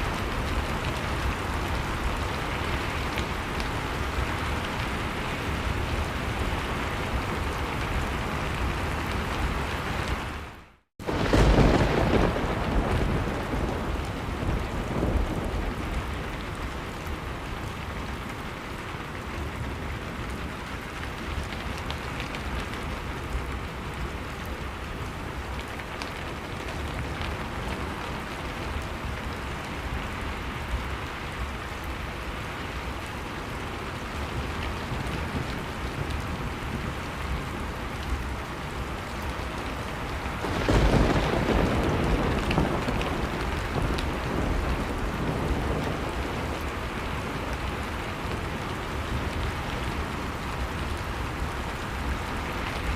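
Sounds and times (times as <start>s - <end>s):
wood fire crackling: 31.7s - 52.9s.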